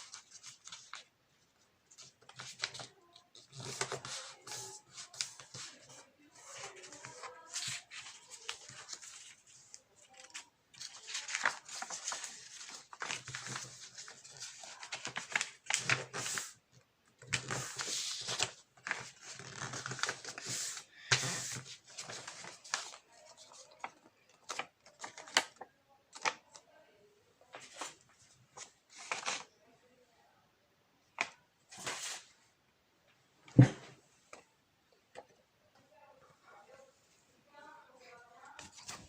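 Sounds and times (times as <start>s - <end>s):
paper rustling and crinkling: 0.0s - 26.6s, 27.4s - 29.5s, 31.2s - 32.4s, 38.0s - 39.0s.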